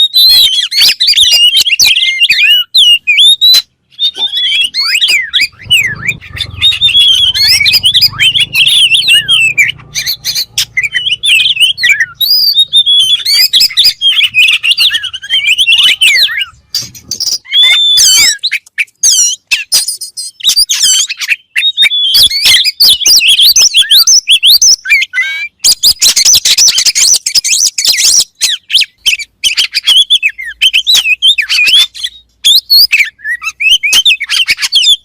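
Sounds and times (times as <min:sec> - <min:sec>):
songbird singing: 0:00.0 - 0:35.0.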